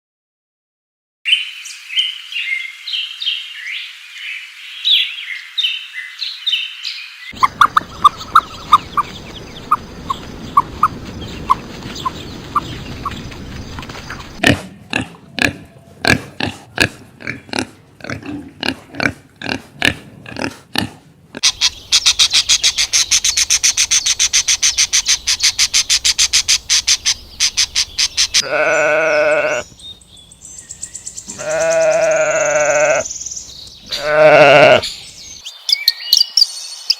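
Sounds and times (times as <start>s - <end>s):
high animal chirping: 7.4s - 14.4s, 21.4s - 29.7s, 30.7s - 35.0s.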